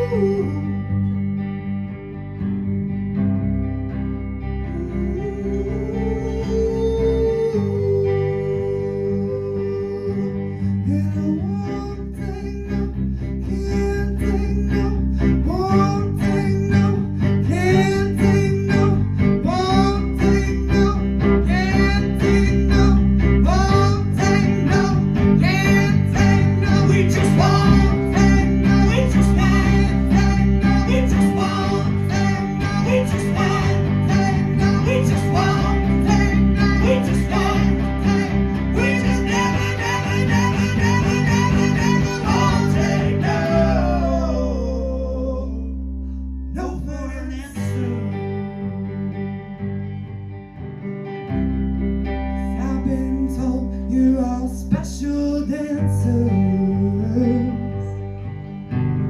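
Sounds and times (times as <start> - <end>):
sliding guitar lead: 0.0 - 59.0
live rock band playing: 26.8 - 43.5.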